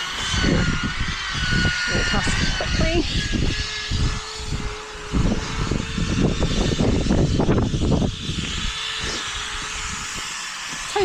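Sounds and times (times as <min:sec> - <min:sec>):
low rumbling: 0:00.0 - 0:11.0
steady motor hum: 0:00.0 - 0:11.0.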